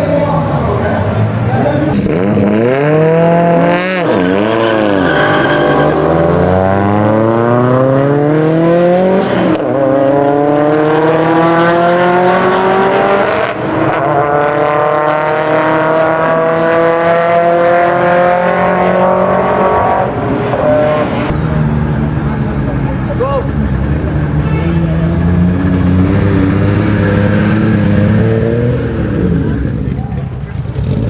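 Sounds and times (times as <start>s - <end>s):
car engine accelerating hard: 0.0s - 31.0s.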